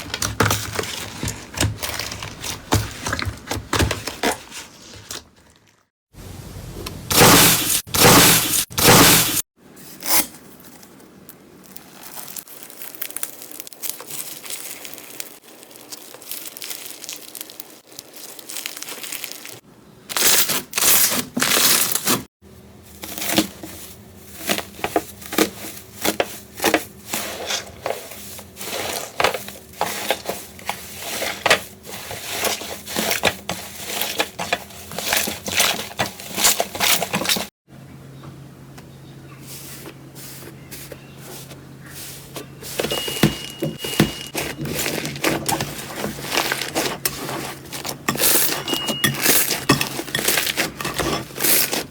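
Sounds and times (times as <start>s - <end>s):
slime crackling and popping: 11.7s - 19.6s.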